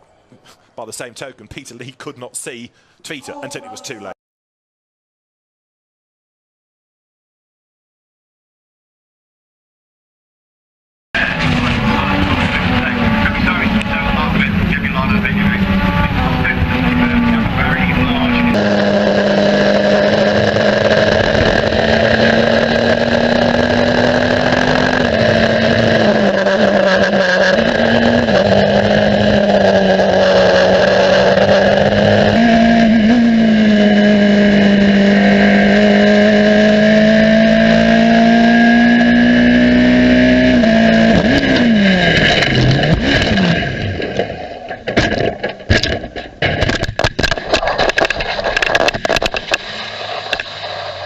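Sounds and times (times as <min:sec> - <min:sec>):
race car engine revving: 0:11.2 - 0:51.0
choppy knocks and clatter: 0:44.0 - 0:49.6.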